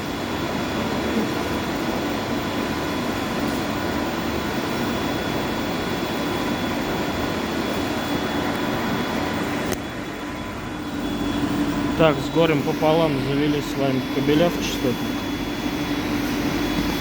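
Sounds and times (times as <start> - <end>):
faint steady hum: 0.0 - 17.0
machinery roar: 5.6 - 17.0.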